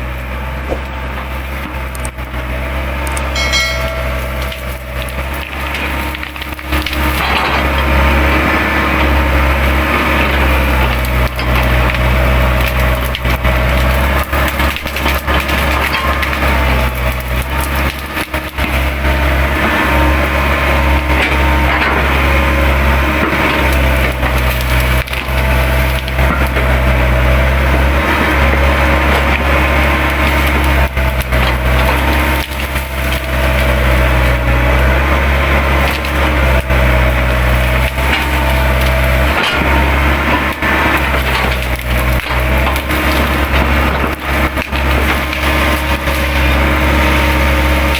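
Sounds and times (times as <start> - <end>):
excavator engine droning: 0.0 - 47.9
branches snapping and crunching: 35.6 - 47.9.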